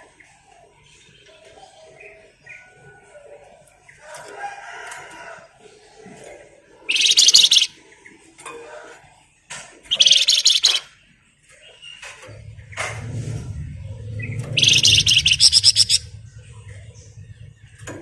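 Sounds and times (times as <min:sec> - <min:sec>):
high rapid buzzing bird trills: 0:06.9 - 0:07.8, 0:09.9 - 0:11.0, 0:14.0 - 0:16.9
songbird twittering: 0:06.9 - 0:07.8, 0:09.9 - 0:11.0, 0:13.8 - 0:17.8.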